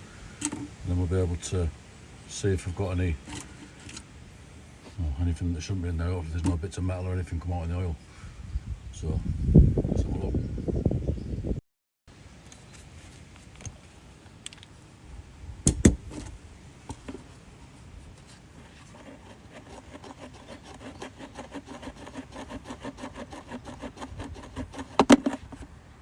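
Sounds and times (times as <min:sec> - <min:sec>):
metal-on-metal clicks: 0:15.7 - 0:16.0.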